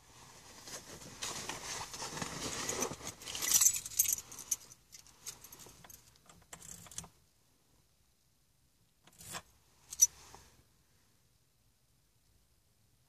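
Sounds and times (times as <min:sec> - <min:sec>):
keys jangling: 0:03.3 - 0:07.1, 0:09.2 - 0:10.1.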